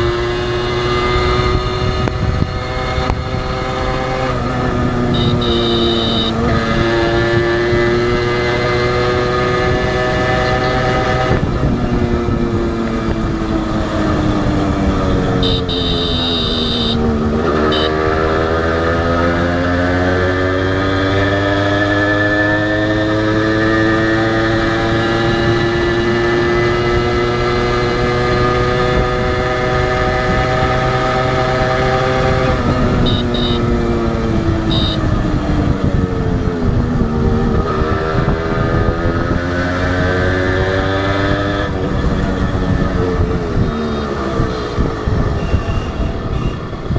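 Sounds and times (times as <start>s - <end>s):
two-stroke motorcycle engine running: 1.1s - 7.2s, 10.4s - 18.8s, 30.6s - 37.6s.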